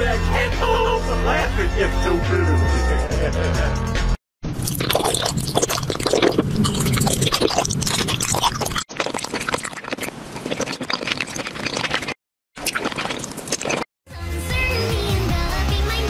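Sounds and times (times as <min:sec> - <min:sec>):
crunching and chewing candy: 0:04.6 - 0:13.9.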